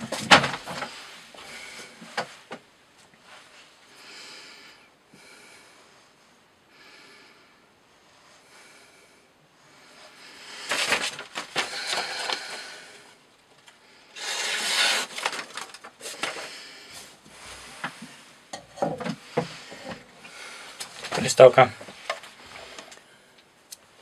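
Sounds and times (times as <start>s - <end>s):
knife rasping through rope: 14.2s - 15.3s.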